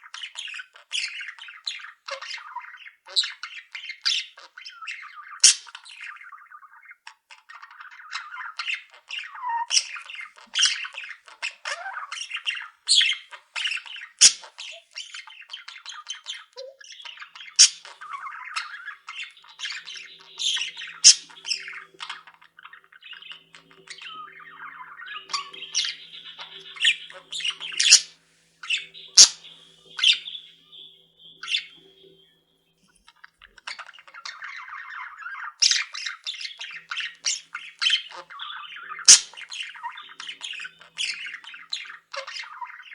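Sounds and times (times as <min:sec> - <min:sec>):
budgerigar squawks and chirps: 0:00.0 - 0:32.2, 0:32.9 - 0:42.9
budgerigars chattering: 0:00.0 - 0:42.9.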